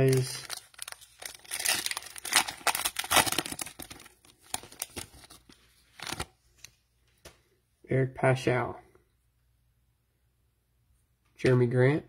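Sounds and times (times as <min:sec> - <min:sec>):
cellophane wrapper crinkling and tearing: 0:00.0 - 0:06.7.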